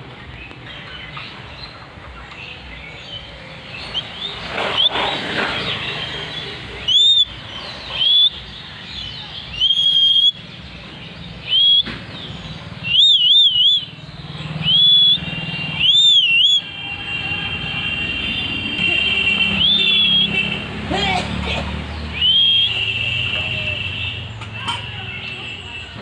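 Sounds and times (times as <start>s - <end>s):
parrot whistled calls: 3.9s - 8.5s, 9.5s - 10.4s, 11.4s - 11.9s, 12.8s - 14.0s, 14.6s - 16.8s, 19.6s - 20.4s, 22.1s - 23.0s.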